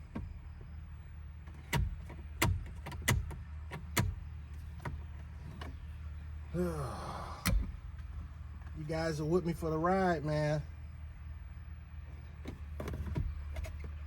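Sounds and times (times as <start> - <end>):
person grunting: 6.5 - 7.6.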